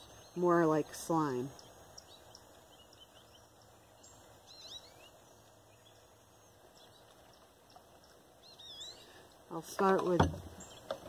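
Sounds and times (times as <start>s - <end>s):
faint bird chirps: 0.0s - 9.6s.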